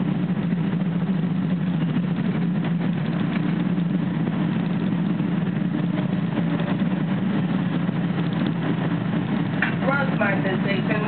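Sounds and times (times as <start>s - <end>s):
train interior hum: 0.0s - 11.0s
wheels rumbling on rails: 0.0s - 11.0s.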